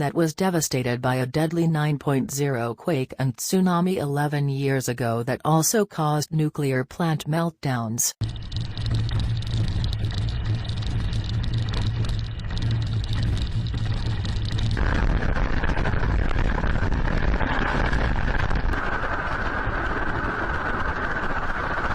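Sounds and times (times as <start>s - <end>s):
loud low rumbling noise: 8.2s - 21.9s.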